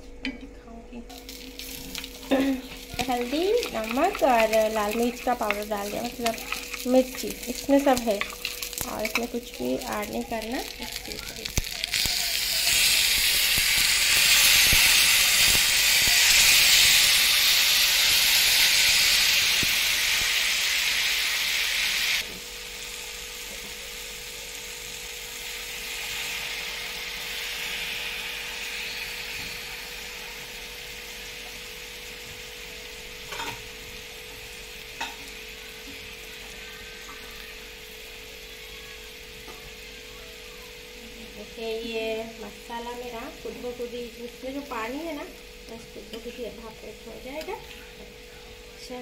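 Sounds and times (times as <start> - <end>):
paste sizzling on hot pan: 1.1 - 39.9.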